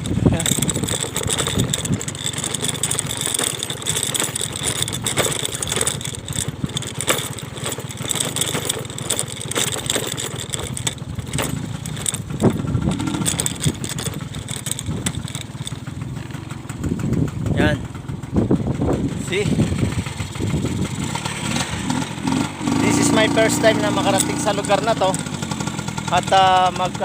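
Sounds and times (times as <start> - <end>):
wind buffeting microphone: 0.0 - 2.2, 11.0 - 15.3, 16.7 - 21.8
motor scooter engine running: 0.0 - 27.0.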